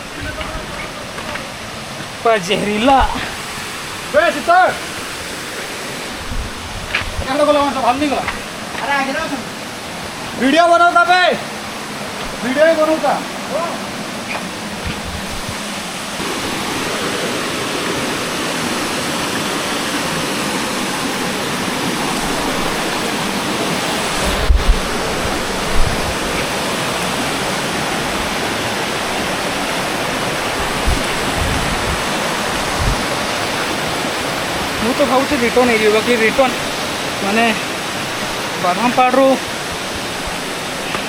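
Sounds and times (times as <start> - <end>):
falling water rushing: 0.0 - 41.0.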